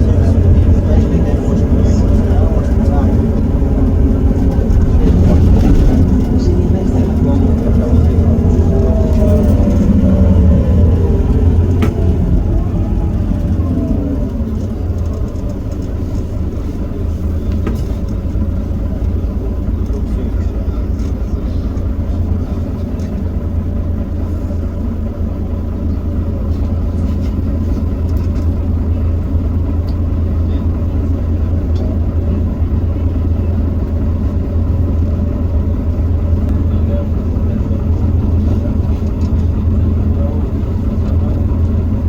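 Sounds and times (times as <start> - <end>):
diesel bus engine droning: 0.0 - 42.0.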